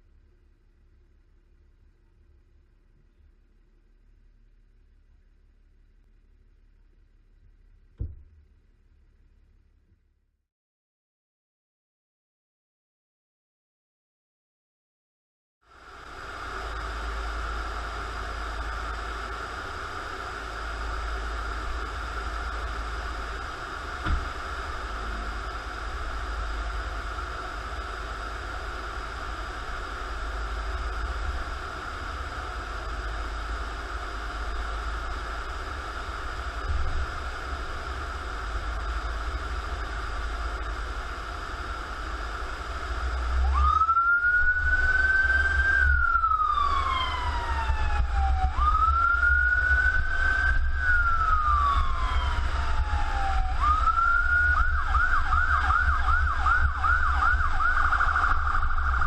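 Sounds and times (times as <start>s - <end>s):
vehicle engine and road rumble: 0.0s - 10.4s, 15.7s - 59.0s
emergency siren wailing and yelping: 43.4s - 59.0s.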